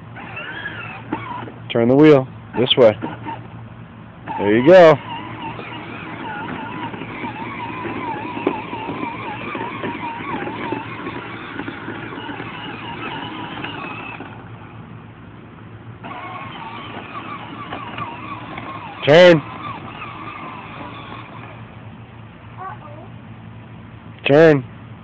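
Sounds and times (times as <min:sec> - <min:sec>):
ride-on tractor motor hum: 0:00.0 - 0:25.0.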